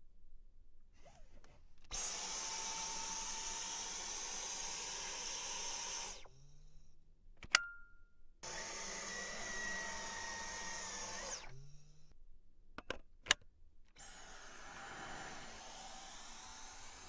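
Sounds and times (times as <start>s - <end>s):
vacuum cleaner whining: 1.9s - 6.4s, 8.4s - 11.7s, 14.0s - 17.0s.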